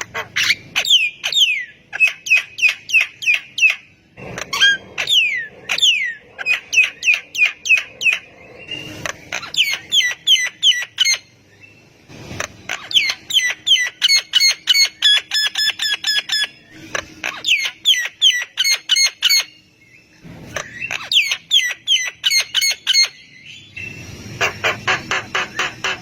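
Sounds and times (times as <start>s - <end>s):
myna chattering calls: 24.4s - 26.0s.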